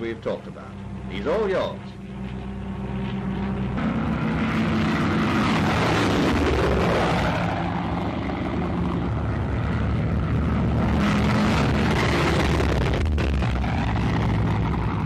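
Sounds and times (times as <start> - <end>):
aircraft piston engines in flight: 0.0 - 15.0.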